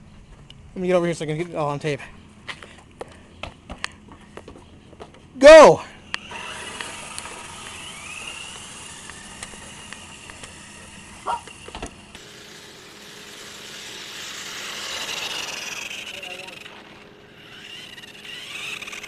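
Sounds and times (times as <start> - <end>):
toy car electric motors whining: 6.0 - 19.0.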